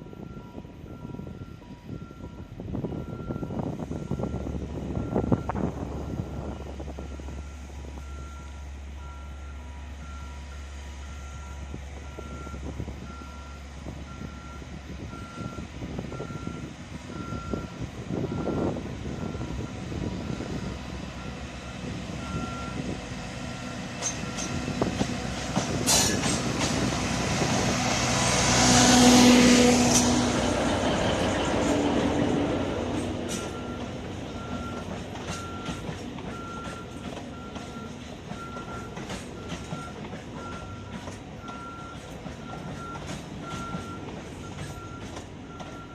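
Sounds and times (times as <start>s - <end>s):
train running past: 0.0s - 45.9s
electronic warning beep: 33.4s - 45.9s.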